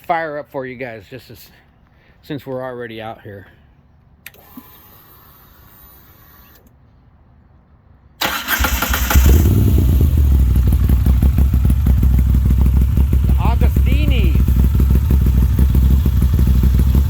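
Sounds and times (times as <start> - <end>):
starter cranking: 8.2 - 9.8
motorcycle engine running: 8.6 - 17.0.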